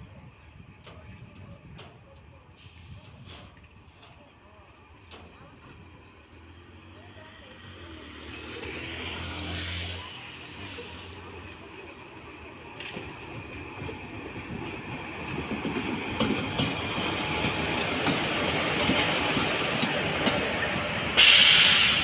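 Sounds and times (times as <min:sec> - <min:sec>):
locomotive rumble: 0:00.2 - 0:22.0
wheels clicking over rail joints: 0:10.6 - 0:21.2.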